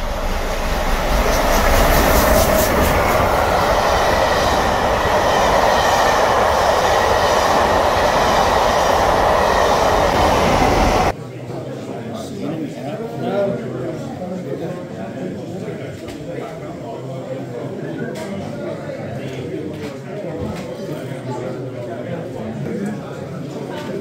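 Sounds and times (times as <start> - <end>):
train wheels on rails: 0.0 - 11.2.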